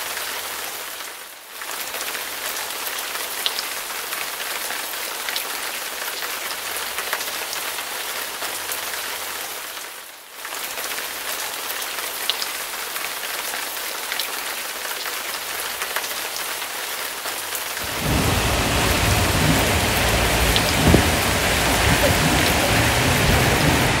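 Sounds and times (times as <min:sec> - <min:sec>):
heavy rain on a car: 0:00.0 - 0:24.0
deep rumble: 0:17.8 - 0:24.0.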